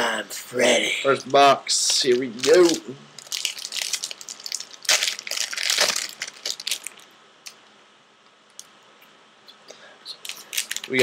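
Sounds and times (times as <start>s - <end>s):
wrapper and cardboard tearing: 2.0s - 7.1s, 10.2s - 11.0s.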